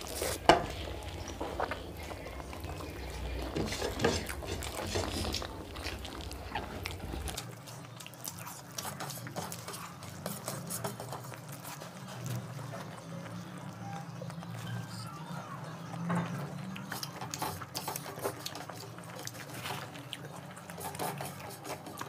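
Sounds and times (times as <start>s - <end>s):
fingers squishing rice: 0.0s - 15.2s
chewing and wet mouth clicks: 4.2s - 22.0s.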